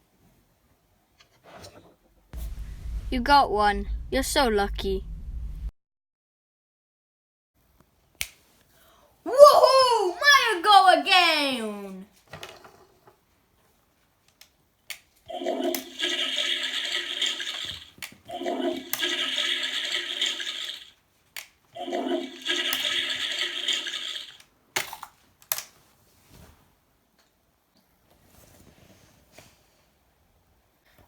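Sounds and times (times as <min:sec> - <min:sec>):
toy toilet flushing: 0:15.3 - 0:21.0, 0:21.8 - 0:25.0.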